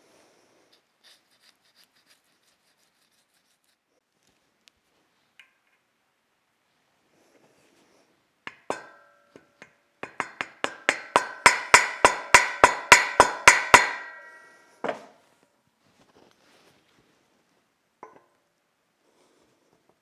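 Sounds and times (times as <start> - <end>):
hammer striking metal: 8.5 - 15.1.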